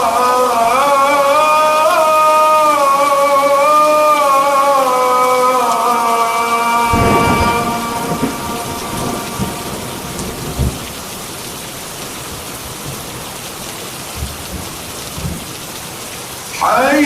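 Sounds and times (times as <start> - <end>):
heavy rain: 0.0 - 17.0
deep thunder rumbles: 6.8 - 15.5.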